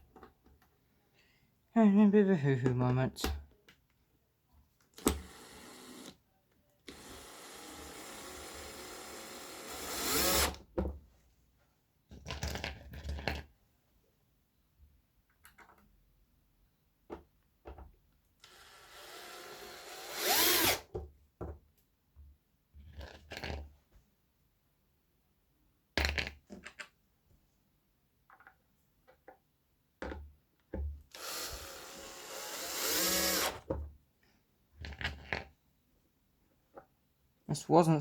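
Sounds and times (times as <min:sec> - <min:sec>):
power drill running: 0:05.0 - 0:06.1, 0:06.9 - 0:10.6, 0:18.4 - 0:20.8, 0:31.1 - 0:33.6.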